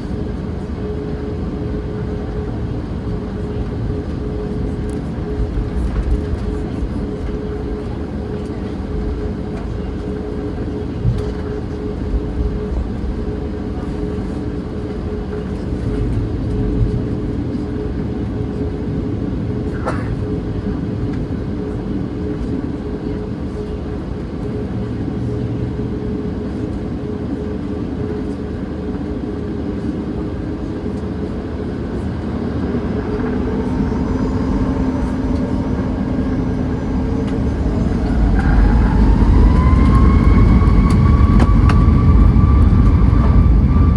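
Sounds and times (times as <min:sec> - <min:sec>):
vehicle engine humming: 0:30.8 - 0:43.9
rising whine: 0:31.8 - 0:43.9.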